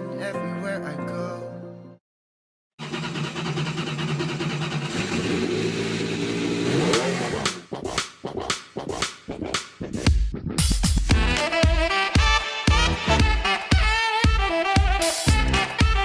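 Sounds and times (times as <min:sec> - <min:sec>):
car engine revving: 0:02.8 - 0:07.7.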